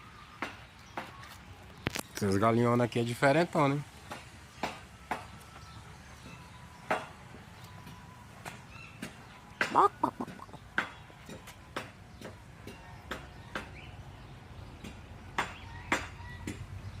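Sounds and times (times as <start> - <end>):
chickens squawking: 9.6 - 10.8.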